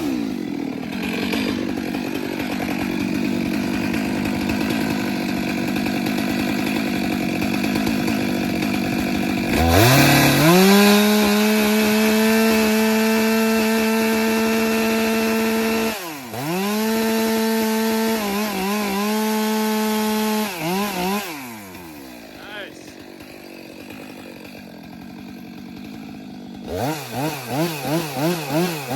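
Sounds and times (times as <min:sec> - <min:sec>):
chainsaw cutting: 0:00.0 - 0:28.9.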